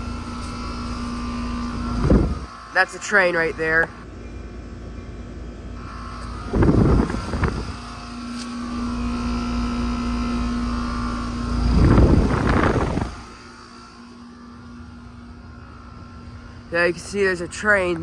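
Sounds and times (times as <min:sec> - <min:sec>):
commuter train passing: 0:02.6 - 0:06.2.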